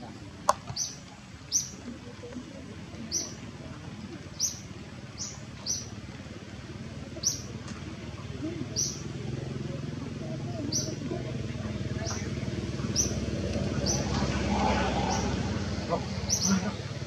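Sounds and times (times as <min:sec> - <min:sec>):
small bird chirping: 0:00.8 - 0:01.8, 0:04.4 - 0:05.9, 0:07.2 - 0:07.5, 0:08.8 - 0:09.1, 0:12.9 - 0:14.1, 0:16.2 - 0:16.9.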